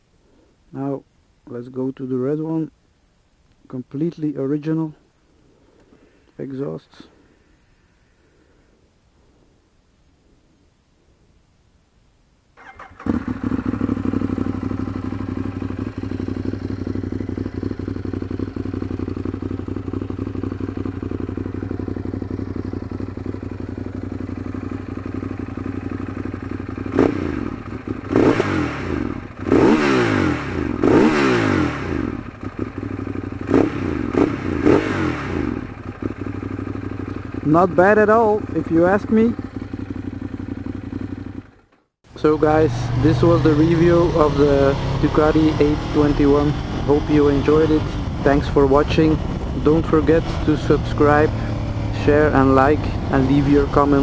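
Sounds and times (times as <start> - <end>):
motorcycle engine idling: 12.6 - 54.0
motorcycle engine revving: 12.6 - 54.0
motorcycle engine starting: 12.6 - 54.0.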